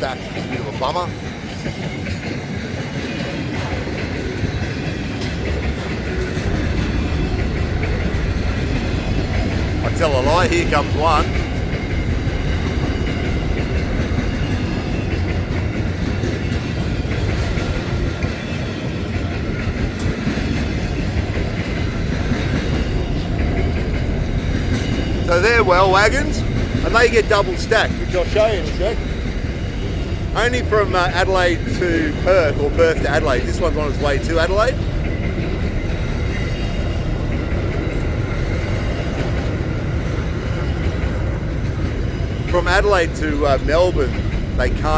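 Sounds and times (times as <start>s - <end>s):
freight train wagons rolling: 0.0s - 44.9s.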